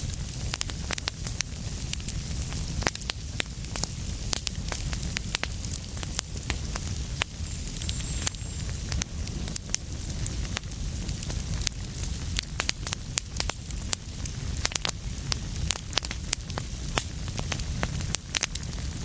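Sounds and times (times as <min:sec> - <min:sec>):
fire crackling and popping: 0:00.0 - 0:19.0
soft hiss: 0:05.6 - 0:12.2.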